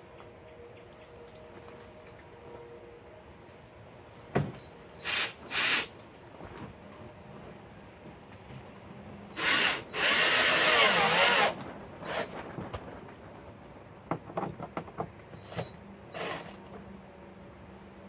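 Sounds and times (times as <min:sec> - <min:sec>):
power drill driving a screw: 0:05.0 - 0:05.9, 0:09.4 - 0:12.3, 0:16.1 - 0:16.6.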